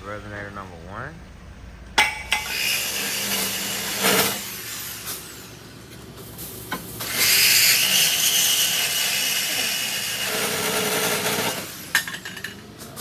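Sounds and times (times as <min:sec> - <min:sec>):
power saw cutting steel pipe: 0:02.0 - 0:05.8, 0:07.0 - 0:11.9.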